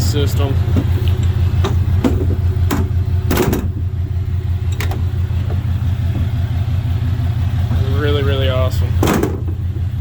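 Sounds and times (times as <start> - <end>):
diesel engine idling: 0.0 - 10.0
sharp clicks and knocks: 0.7 - 3.9, 4.6 - 6.3, 9.0 - 9.6.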